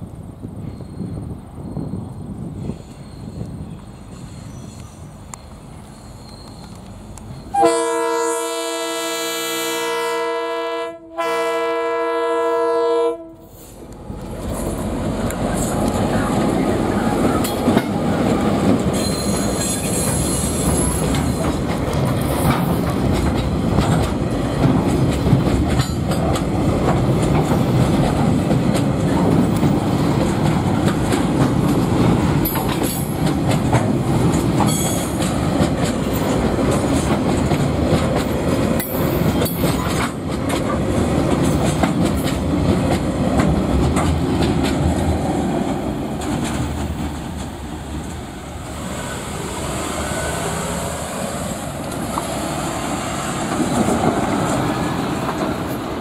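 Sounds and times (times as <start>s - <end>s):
train rumbling on rails: 0.0s - 56.0s
high-pitched wheel squeal: 0.6s - 2.0s, 2.6s - 7.8s, 18.9s - 21.4s
clicks over rail joints: 21.0s - 45.1s.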